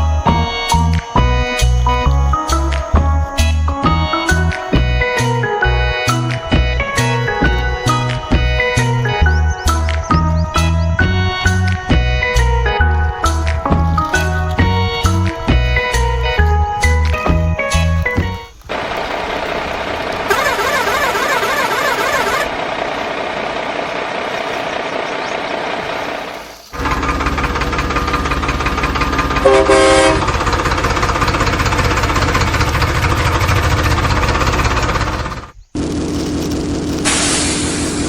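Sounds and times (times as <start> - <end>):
heavy vehicle engine running: 0.0 - 38.0
horn blast: 20.3 - 22.5, 29.4 - 30.4.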